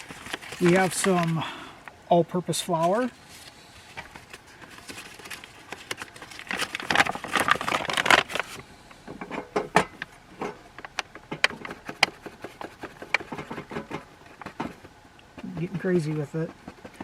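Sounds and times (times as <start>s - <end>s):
paper package crinkling: 0.0s - 1.6s, 2.6s - 8.7s.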